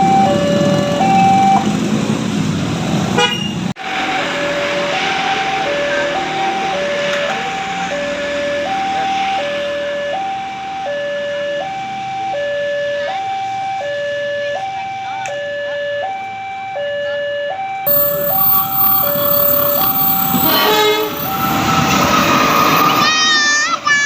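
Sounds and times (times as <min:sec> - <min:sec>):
two-tone crossing warning alarm: 0:00.0 - 0:01.8, 0:03.8 - 0:23.0
train rushing past: 0:03.8 - 0:09.7, 0:17.9 - 0:24.0.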